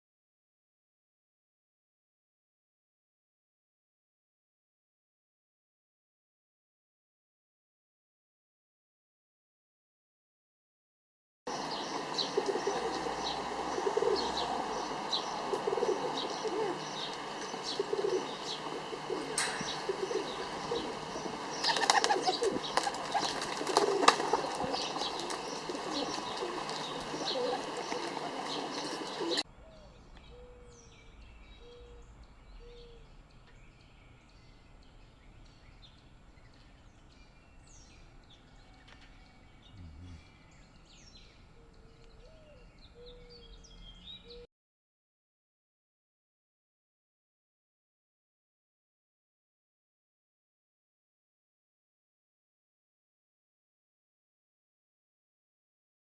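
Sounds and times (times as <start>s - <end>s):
pigeon cooing: 11.5s - 33.2s, 38.6s - 44.5s
birds chirping: 11.5s - 44.5s
wings fluttering: 13.8s - 30.7s.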